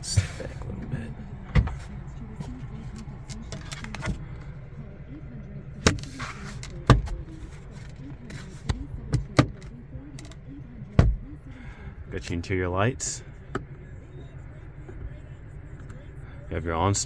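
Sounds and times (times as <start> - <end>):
low hum in car cabin: 0.0 - 17.0
sharp clicks and knocks: 5.8 - 10.4.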